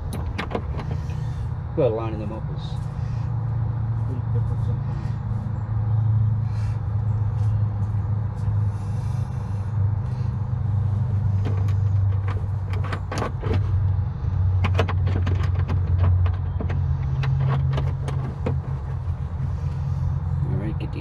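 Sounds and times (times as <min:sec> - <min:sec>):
metal clicks and knocks: 0:00.0 - 0:01.2, 0:11.4 - 0:19.0
low engine hum: 0:00.0 - 0:21.0.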